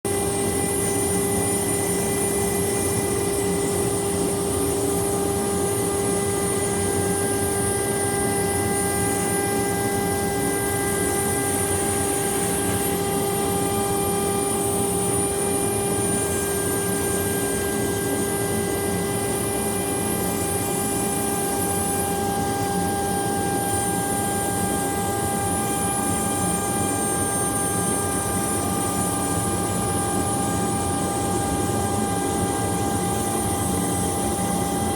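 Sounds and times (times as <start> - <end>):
milling machine spindle whine: 0.1 - 34.9.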